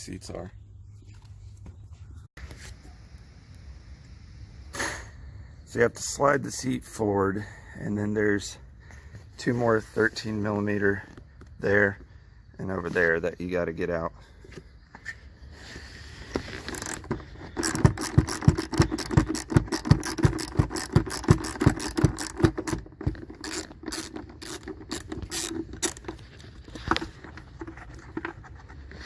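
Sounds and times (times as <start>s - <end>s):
ratchet wrench clicking: 16.7s - 22.8s, 23.4s - 26.1s.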